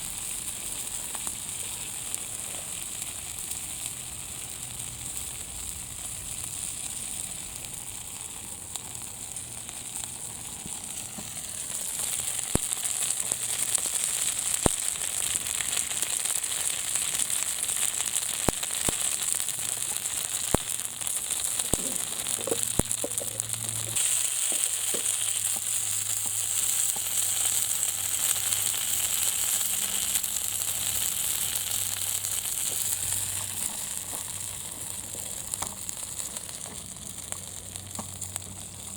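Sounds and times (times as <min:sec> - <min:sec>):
fire crackling pops: 0:00.0 - 0:38.9
wood fire hissing: 0:00.0 - 0:38.9.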